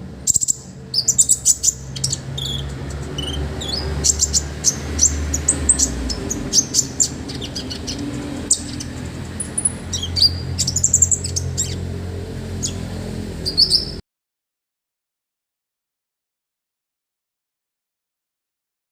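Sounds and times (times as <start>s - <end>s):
songbird chirping and trilling: 0.2s - 14.0s.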